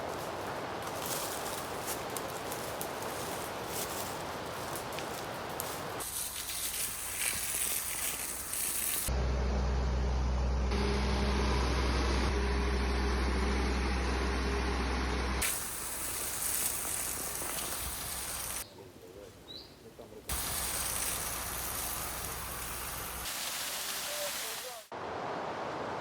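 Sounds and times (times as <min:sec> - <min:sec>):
rushing hiss of spraying water: 0:01.0 - 0:09.1, 0:15.4 - 0:18.6, 0:20.3 - 0:24.9
pump engine droning: 0:07.8 - 0:18.6, 0:20.3 - 0:23.3.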